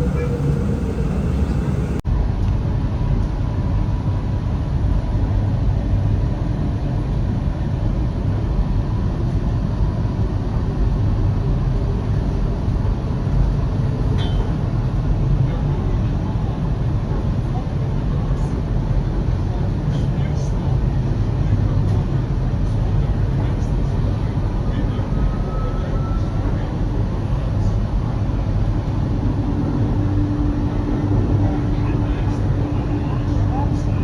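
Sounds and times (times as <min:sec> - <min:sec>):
tram rumbling: 0:00.0 - 0:02.0, 0:20.6 - 0:34.0.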